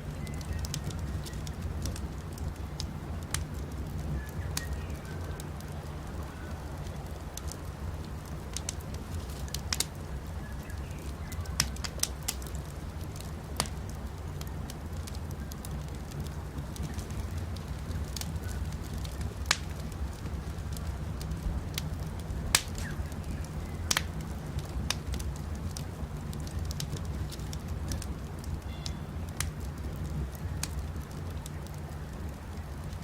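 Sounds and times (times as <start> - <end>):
faint bird chirps: 0.0 - 1.5, 28.6 - 29.2
campfire crackling: 0.0 - 33.0
fire popping: 0.0 - 33.0.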